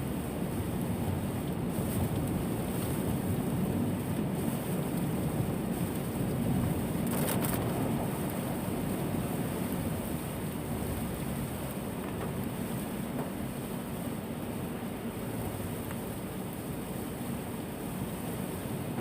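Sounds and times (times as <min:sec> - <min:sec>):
heavy rain and wind: 0:00.0 - 0:19.0.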